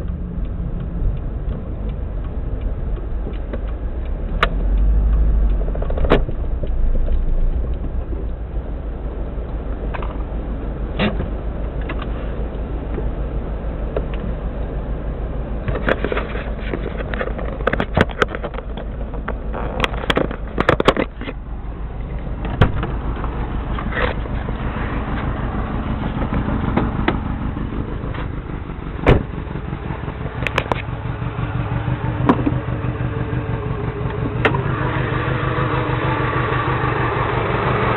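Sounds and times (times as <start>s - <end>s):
car engine running: 0.0s - 37.9s.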